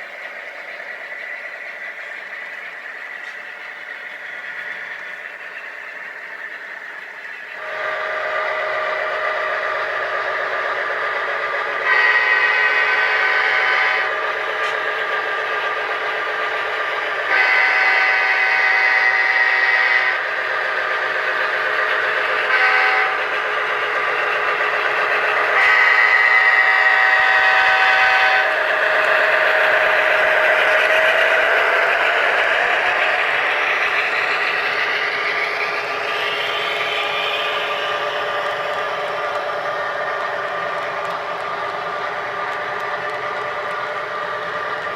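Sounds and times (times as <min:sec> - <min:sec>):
model locomotive engine drone: 0:00.0 - 0:44.9
locomotive horn blasts: 0:11.8 - 0:14.1, 0:17.3 - 0:20.2, 0:22.5 - 0:23.2, 0:25.5 - 0:28.6.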